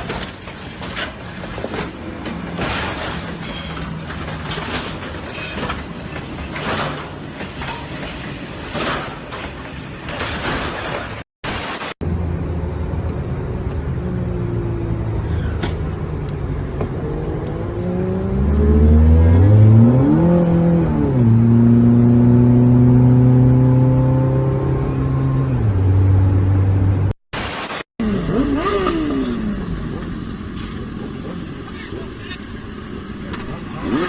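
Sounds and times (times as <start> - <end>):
vehicle engine accelerating: 12.0 - 27.2, 28.0 - 34.0.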